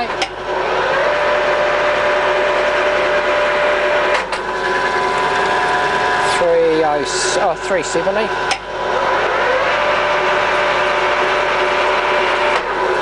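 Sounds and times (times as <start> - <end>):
lathe gears whining: 0.0 - 13.0.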